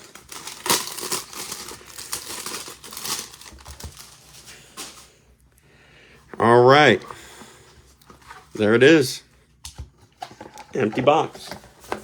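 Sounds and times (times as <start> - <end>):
foil wrapper crinkling and tearing: 0.0 - 4.9.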